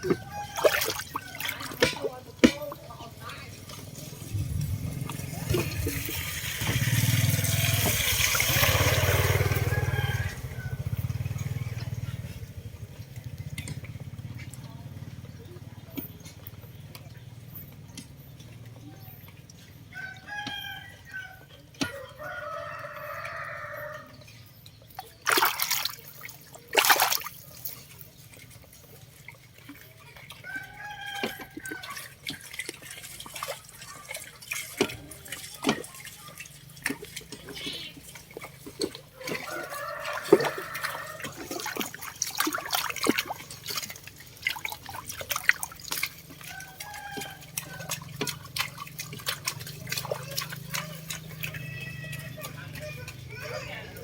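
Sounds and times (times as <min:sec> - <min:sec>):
rooster crowing: 0:00.0 - 0:01.7, 0:09.0 - 0:11.2, 0:19.9 - 0:24.2, 0:39.2 - 0:41.5, 0:46.5 - 0:48.0
loud water splashes: 0:00.0 - 0:14.2, 0:21.8 - 0:54.0
water trickling and splashing: 0:00.0 - 0:54.0.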